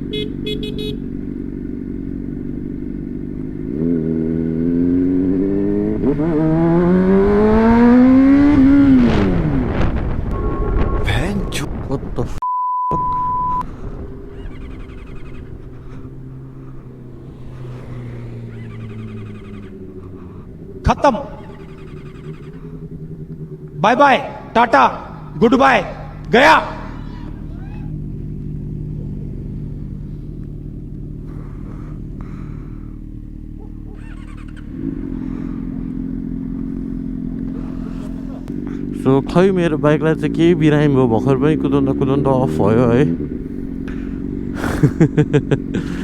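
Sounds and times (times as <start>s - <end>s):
motorcycle engine idling: 0.0s - 6.1s, 13.7s - 46.0s
higher engine note: 0.0s - 11.1s, 13.2s - 46.0s
censor bleep: 12.4s - 13.7s.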